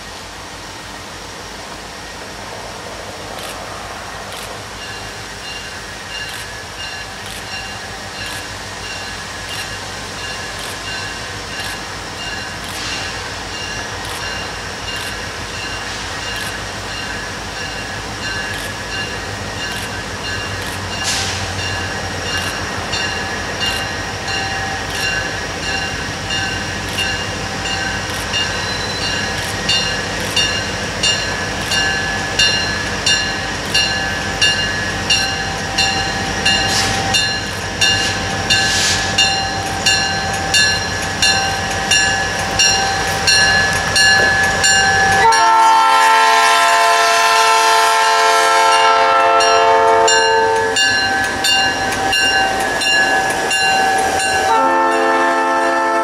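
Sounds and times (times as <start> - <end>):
wheels clicking over rail joints: 4.2 - 45.9
locomotive air horn: 45.2 - 50.8, 54.5 - 56.0.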